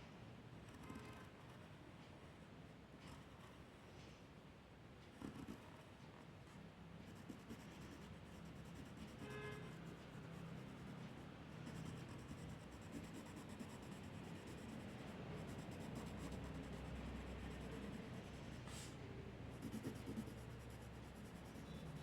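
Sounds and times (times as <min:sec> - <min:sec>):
drawing tool scratching on paper: 0:05.2 - 0:05.6, 0:07.1 - 0:18.7, 0:19.5 - 0:22.0.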